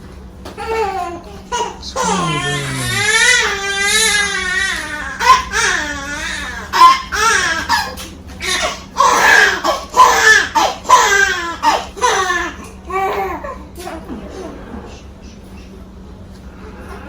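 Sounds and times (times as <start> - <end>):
baby crying: 0.6 - 7.6.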